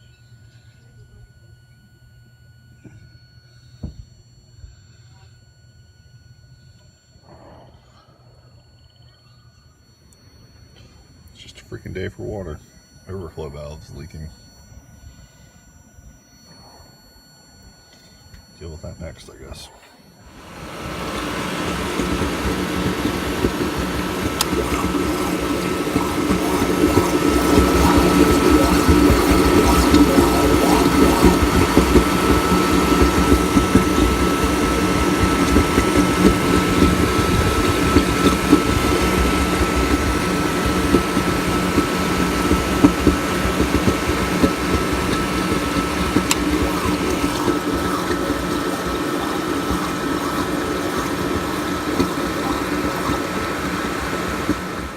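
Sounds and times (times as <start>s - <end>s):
thin steady tone: 0.0s - 54.9s
water rushing: 20.4s - 54.9s.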